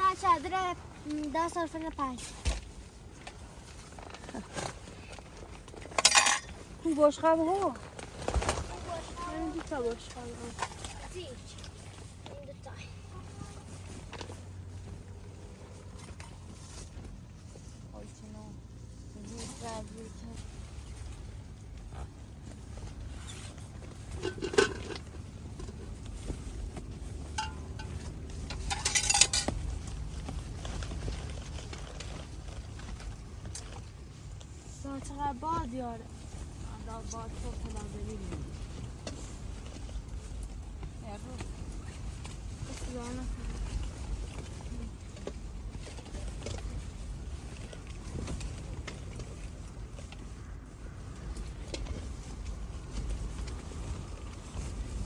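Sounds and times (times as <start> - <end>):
low wind rumble: 0.0 - 55.0
plates and cutlery clattering: 5.9 - 6.6, 24.2 - 25.0, 27.3 - 29.6.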